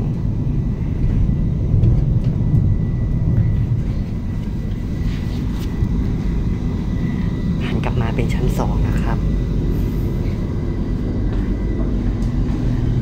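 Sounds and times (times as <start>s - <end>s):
faint high whine: 0.0s - 13.0s
train rumble inside carriage: 0.0s - 13.0s.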